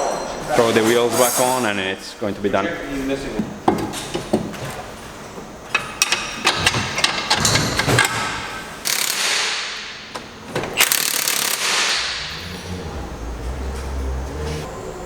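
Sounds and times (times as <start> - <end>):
impact wrench bursts: 5.8 - 12.8
wrench ratcheting clicks: 8.8 - 9.5, 10.8 - 12.1.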